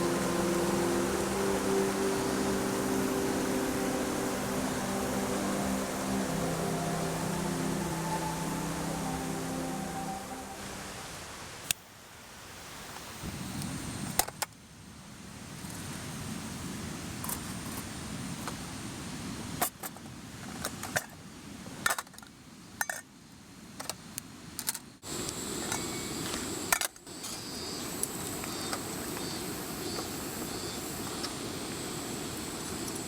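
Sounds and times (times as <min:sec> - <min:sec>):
stream rushing: 0:00.0 - 0:11.6.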